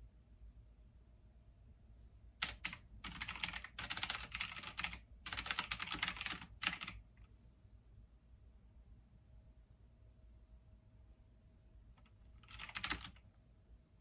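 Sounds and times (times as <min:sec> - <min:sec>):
computer keyboard typing: 0:02.4 - 0:07.0, 0:12.0 - 0:13.2.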